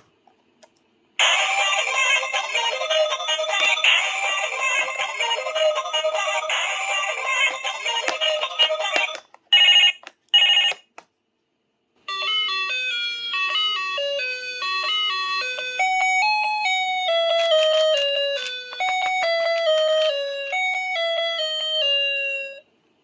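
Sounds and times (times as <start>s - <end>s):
chiming electronic melody: 12.1s - 22.7s.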